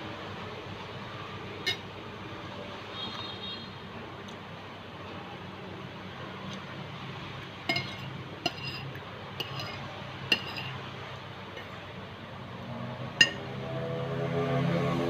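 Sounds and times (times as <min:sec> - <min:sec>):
cutlery clinking on plate: 0:07.7 - 0:10.8, 0:13.2 - 0:13.4.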